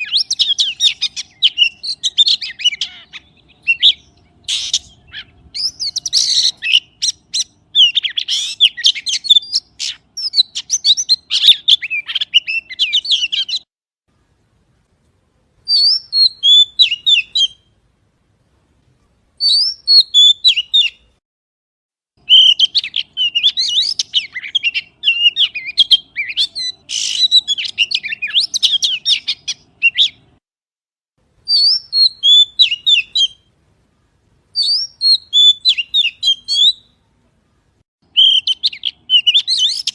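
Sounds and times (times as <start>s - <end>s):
magpie chirping: 0.0s - 13.6s, 15.7s - 17.6s, 19.4s - 21.1s, 22.2s - 30.4s, 31.5s - 33.4s, 34.6s - 37.0s, 38.1s - 39.9s.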